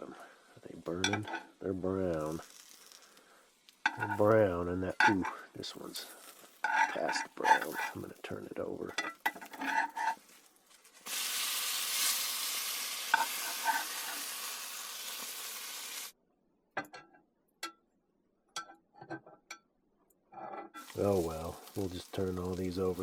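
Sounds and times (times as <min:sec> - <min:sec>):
rolls sizzling in a hot pan: 0:00.0 - 0:16.2, 0:20.8 - 0:23.0.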